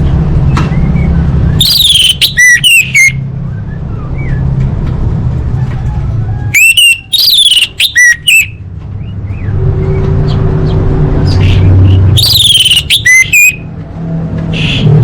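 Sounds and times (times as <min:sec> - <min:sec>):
bird whistled song: 0:00.5 - 0:04.5, 0:06.5 - 0:10.4, 0:11.2 - 0:13.7.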